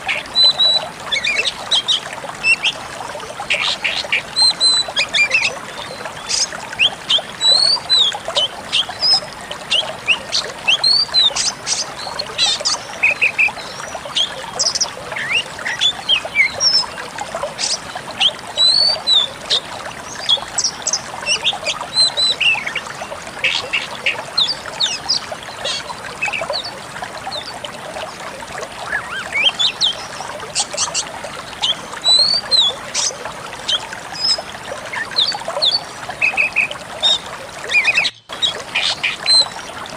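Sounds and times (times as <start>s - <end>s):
songbird singing: 33.7s - 39.7s.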